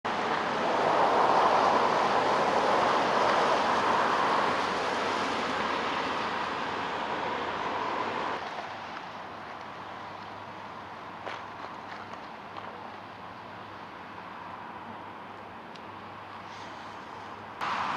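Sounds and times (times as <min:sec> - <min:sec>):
vehicle passing: 0:17.6 - 0:17.9.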